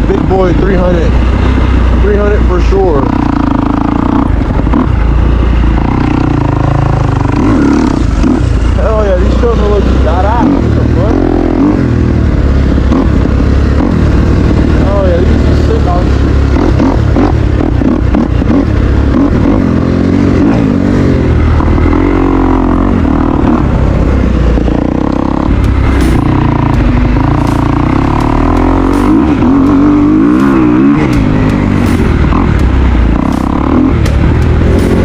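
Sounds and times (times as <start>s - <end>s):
dirt bike engine revving: 0.0s - 35.0s
sharp ticks: 24.6s - 35.0s.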